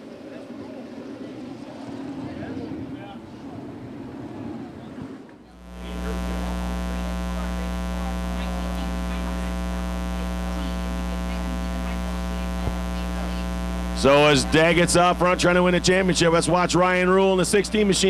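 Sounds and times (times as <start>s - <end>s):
electrical mains hum: 5.6s - 18.0s.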